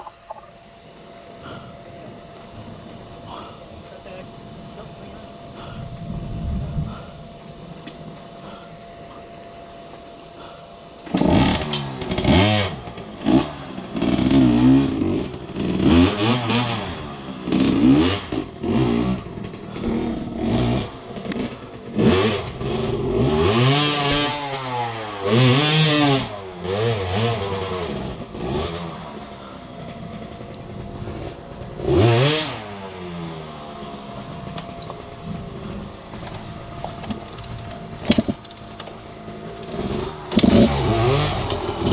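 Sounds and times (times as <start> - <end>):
engine clatter: 6.9 - 41.9
dirt bike engine revving: 10.4 - 36.7, 37.8 - 41.9.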